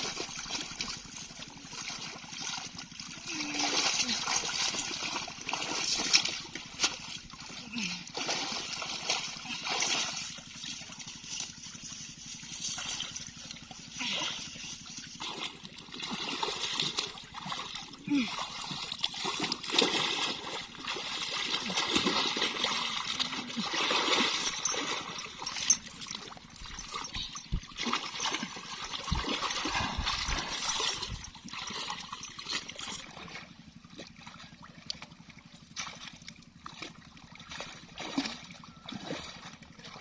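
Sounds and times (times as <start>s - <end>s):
water splashing and trickling: 0.0s - 40.0s.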